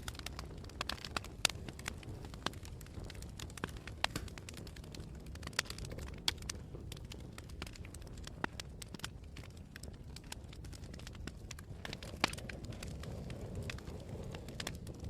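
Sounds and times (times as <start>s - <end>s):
campfire crackling: 0.0s - 15.0s
wind: 0.0s - 15.0s.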